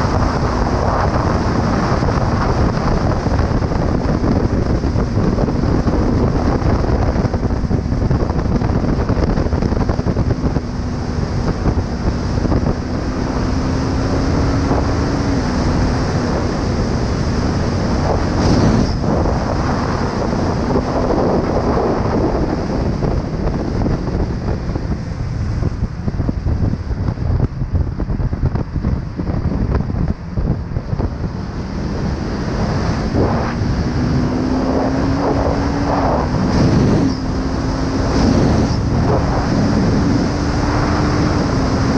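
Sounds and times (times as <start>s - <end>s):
wind noise on microphone: 0.0s - 41.9s
motorcycle engine: 27.2s - 41.9s.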